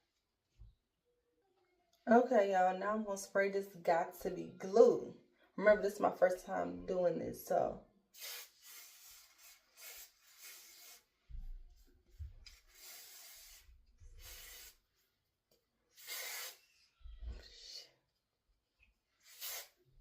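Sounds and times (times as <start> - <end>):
aerosol spray hissing: 8.2 - 11.1, 12.5 - 14.9, 16.0 - 16.7, 19.2 - 19.8.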